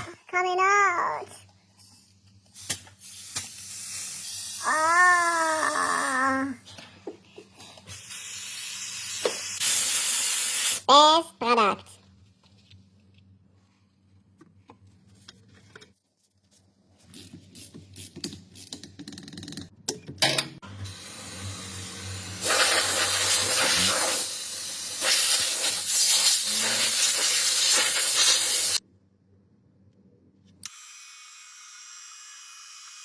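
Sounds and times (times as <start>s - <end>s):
pressurized spray hissing: 21.6s - 28.8s.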